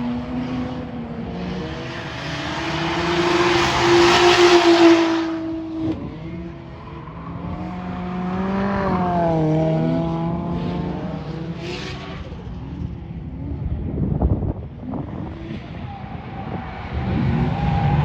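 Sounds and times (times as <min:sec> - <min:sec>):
car engine passing by: 0:01.6 - 0:06.0.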